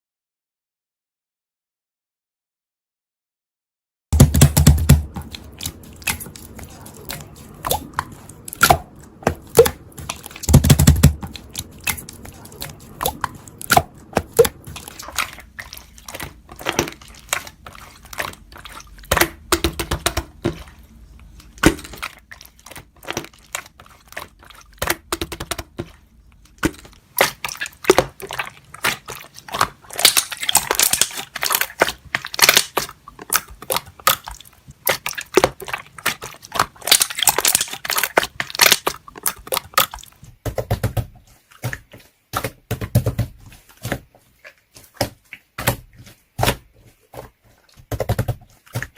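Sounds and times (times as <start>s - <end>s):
slime squished by hand: 4.2s - 40.3s.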